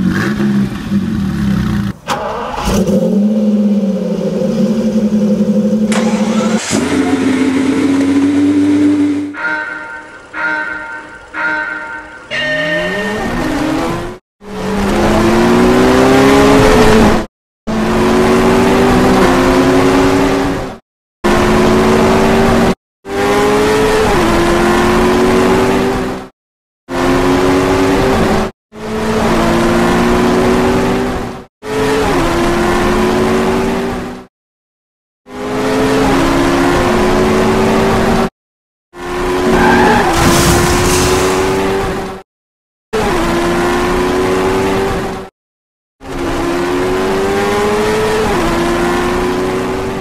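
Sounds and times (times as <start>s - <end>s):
racing car engines revving: 0.0s - 9.3s, 12.7s - 26.3s, 26.9s - 34.3s, 35.3s - 38.3s, 39.0s - 42.2s, 43.0s - 45.3s, 46.0s - 50.0s.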